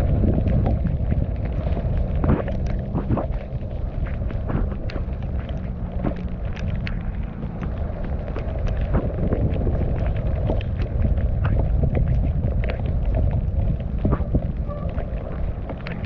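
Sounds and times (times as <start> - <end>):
bike clicks and rattles: 0.0 - 16.0
wind rumbling on microphone: 0.0 - 16.0.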